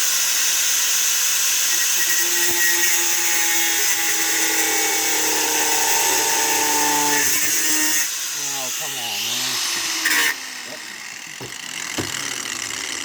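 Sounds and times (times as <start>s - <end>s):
power tool cutting antler: 0.0s - 13.0s.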